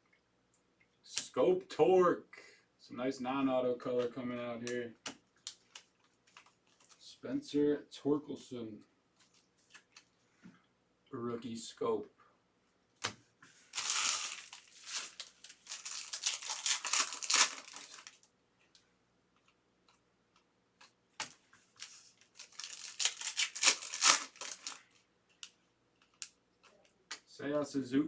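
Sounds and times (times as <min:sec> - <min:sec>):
foil wrappers tearing and crinkling: 0:13.7 - 0:18.2, 0:21.2 - 0:24.8.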